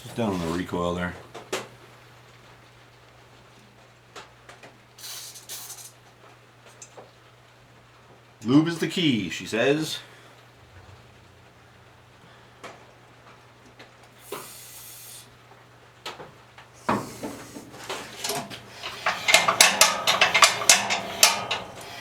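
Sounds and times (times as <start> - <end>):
aerosol hiss: 5.0 - 5.9, 14.2 - 15.4
metallic rattling and clattering: 16.8 - 22.0.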